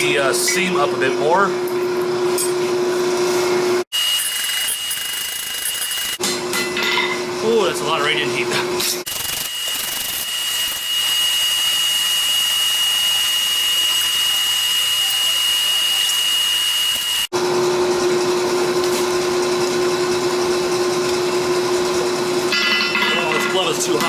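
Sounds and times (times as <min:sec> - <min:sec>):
forge blower rushing and humming: 0:00.0 - 0:24.0.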